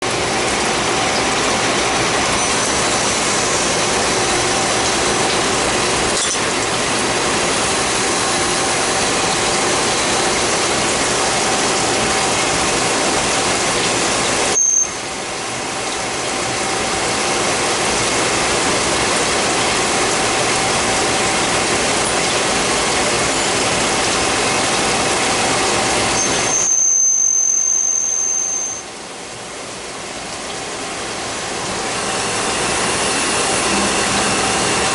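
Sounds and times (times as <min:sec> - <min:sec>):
lathe machining noise: 0:00.0 - 0:27.8, 0:30.6 - 0:34.9
brief high whine: 0:31.9 - 0:34.9.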